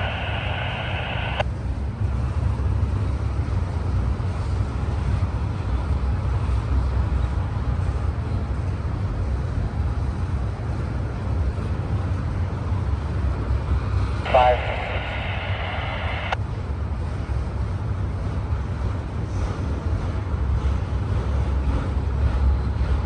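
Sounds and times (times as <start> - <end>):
scanner radio squelch click: 0.0 - 1.4, 14.3 - 16.4
diesel locomotives rumbling: 0.0 - 23.0.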